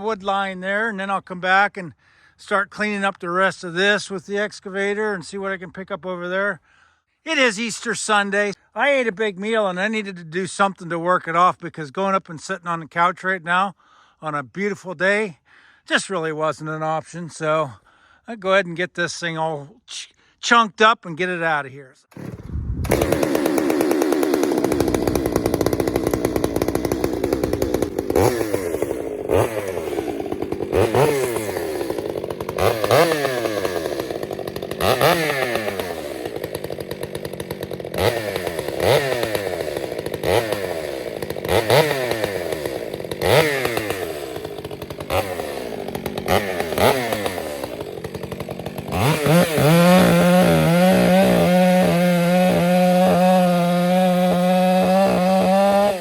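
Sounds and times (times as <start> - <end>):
chainsaw running: 22.1 - 56.0.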